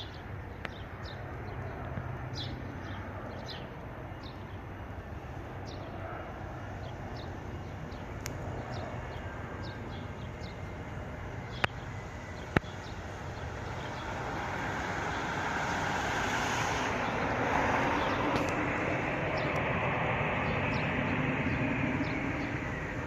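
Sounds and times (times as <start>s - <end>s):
distant jet engines rumbling: 0.0s - 23.0s.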